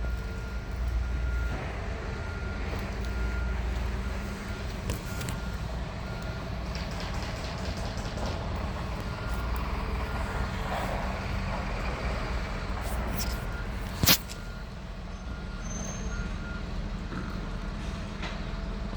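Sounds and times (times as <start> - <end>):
diesel engine idling: 0.0 - 18.9
faint short beeps: 12.8 - 16.6.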